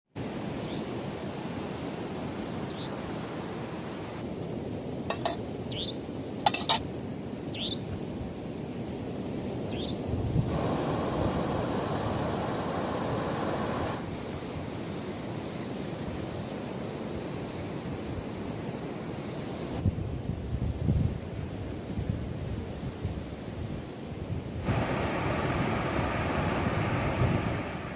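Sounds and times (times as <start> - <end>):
wind: 0.1 - 27.9
sea waves washing onto beach: 8.0 - 19.8, 21.2 - 27.9.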